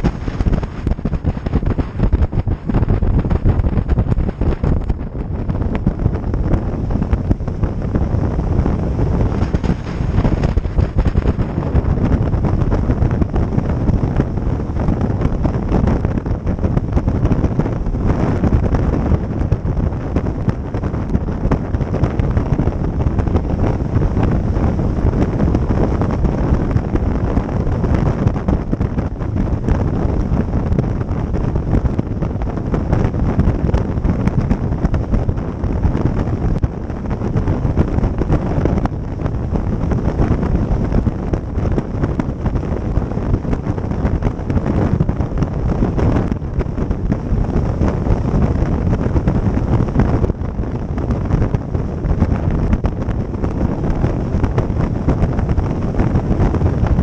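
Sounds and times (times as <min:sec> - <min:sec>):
boat motor rushing: 0:00.0 - 0:26.4
wind buffeting microphone: 0:00.0 - 0:57.0.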